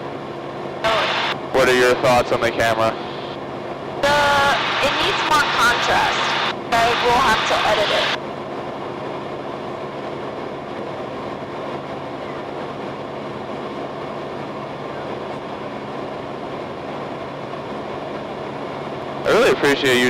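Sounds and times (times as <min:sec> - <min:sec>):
aircraft engine and propeller droning: 0:00.0 - 0:20.0.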